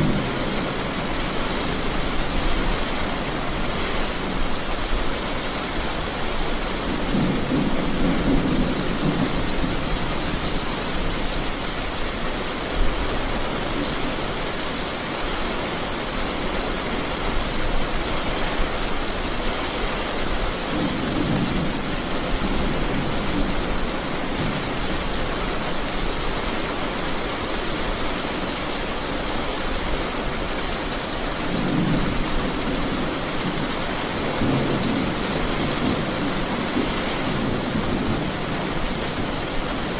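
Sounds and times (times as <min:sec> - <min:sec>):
low rolls of thunder: 0:00.0 - 0:02.7, 0:07.0 - 0:11.2, 0:31.5 - 0:39.9
steady rain: 0:00.0 - 0:39.9.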